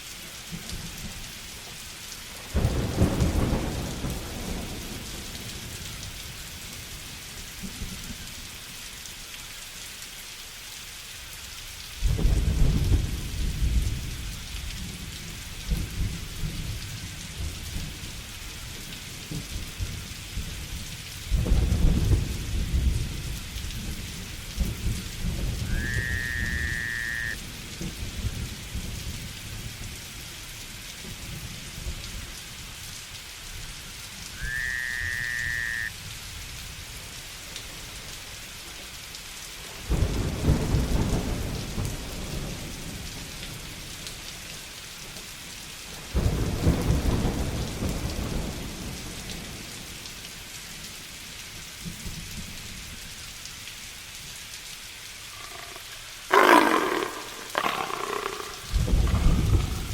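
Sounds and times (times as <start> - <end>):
heavy rain: 0.0 - 59.9
thunder rumbling: 24.8 - 27.6, 55.4 - 59.9
whistle-like call: 25.6 - 27.4, 34.4 - 35.9.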